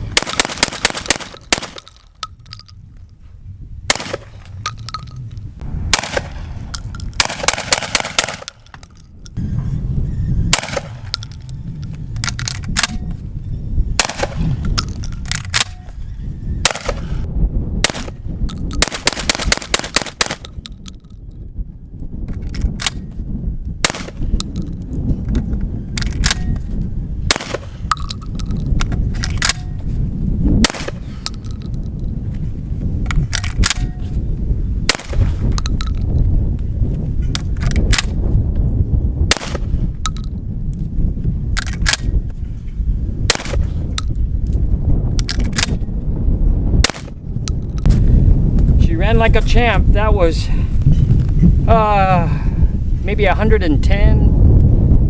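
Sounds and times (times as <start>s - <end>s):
shotgun firing shots: 0.1s - 2.1s, 3.9s - 4.8s, 5.8s - 8.8s, 10.5s - 11.4s, 14.0s - 15.8s, 16.6s - 18.2s, 18.8s - 20.6s, 23.8s - 24.4s, 27.3s - 28.0s, 30.6s - 31.2s, 34.9s - 35.4s, 39.3s - 39.8s, 43.3s - 43.8s, 46.8s - 47.2s.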